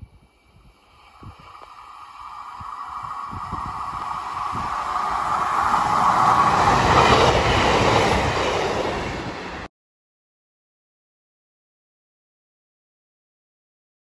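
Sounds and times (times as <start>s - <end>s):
high hum: 0.0s - 8.2s
diesel train passing: 0.0s - 9.7s
wheels rumbling on rail: 0.0s - 9.7s.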